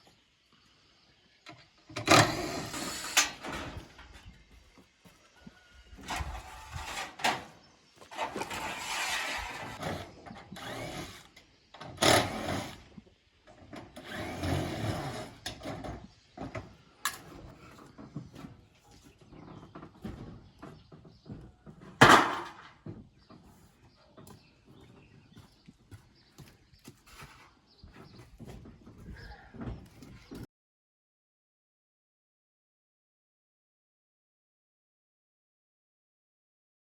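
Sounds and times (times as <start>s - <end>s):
power tool bursts: 2.0s - 3.7s, 8.1s - 12.9s.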